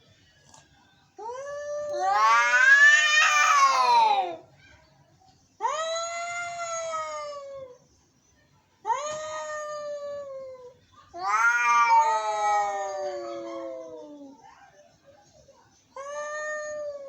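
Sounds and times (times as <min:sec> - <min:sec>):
cats yowling: 0:01.2 - 0:04.4, 0:05.6 - 0:07.8, 0:08.8 - 0:14.4, 0:16.0 - 0:17.0.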